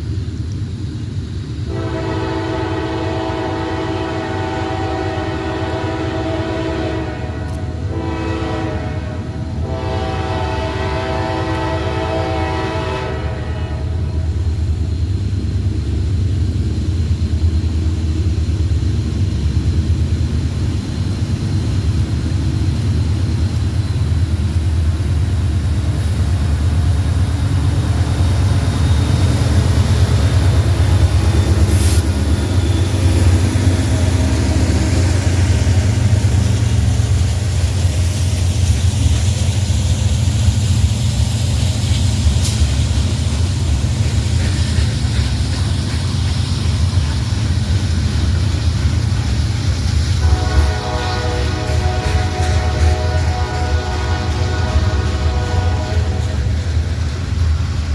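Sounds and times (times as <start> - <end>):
freight train rumbling by: 0.0 - 57.9
train horn chord: 1.7 - 14.3, 50.2 - 56.9.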